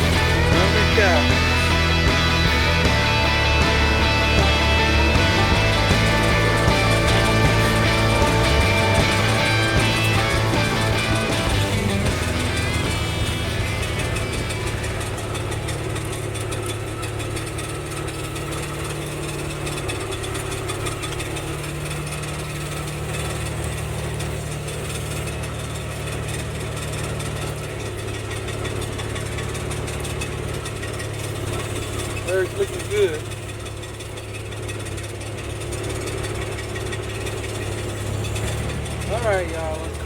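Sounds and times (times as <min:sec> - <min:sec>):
vehicle engine running: 0:00.0 - 0:40.0.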